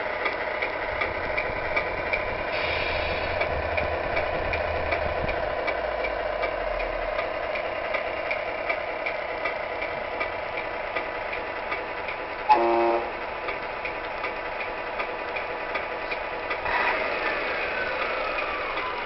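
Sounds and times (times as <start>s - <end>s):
simulated diesel idle ticking: 0.0s - 19.0s
air horn blast: 12.5s - 13.2s.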